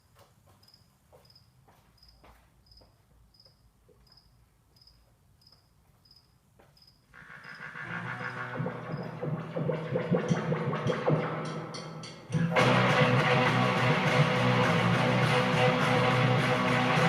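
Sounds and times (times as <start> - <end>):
faint background noise: 0.0 - 10.1
loud music: 7.2 - 17.0.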